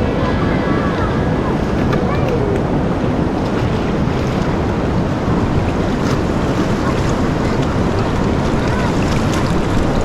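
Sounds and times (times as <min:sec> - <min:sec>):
river water rushing: 0:00.0 - 0:10.0
wind on microphone: 0:00.0 - 0:10.0.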